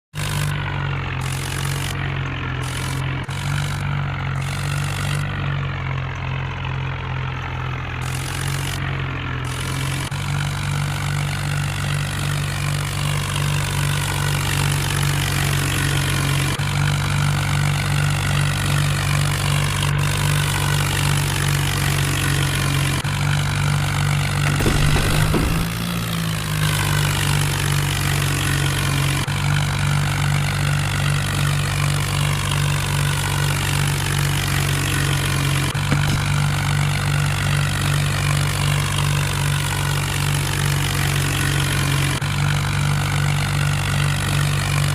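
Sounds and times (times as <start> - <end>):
tractor diesel engine droning: 0.1 - 44.9
thresher rushing noise: 24.4 - 27.0.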